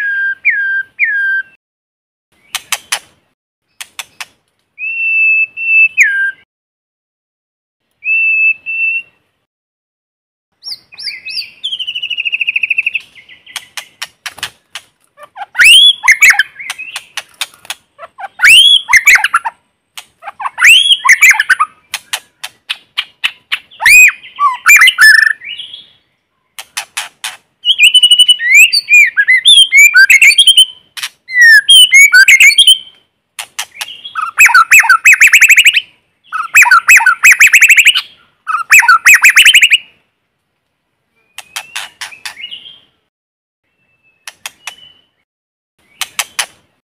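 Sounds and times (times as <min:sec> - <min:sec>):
bird singing with whistles and clicks: 0:00.0 - 0:01.6, 0:03.7 - 0:06.5, 0:08.0 - 0:09.2, 0:10.6 - 0:14.5, 0:15.4 - 0:17.5, 0:18.2 - 0:19.5, 0:20.3 - 0:25.9, 0:26.5 - 0:39.9, 0:41.2 - 0:42.9, 0:43.8 - 0:45.2, 0:45.8 - 0:46.6.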